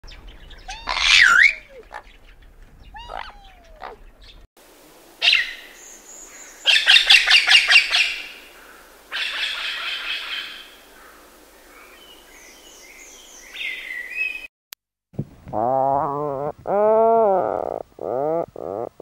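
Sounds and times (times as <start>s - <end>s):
parrot squawking harshly: 0.7s - 2.0s, 3.0s - 4.0s.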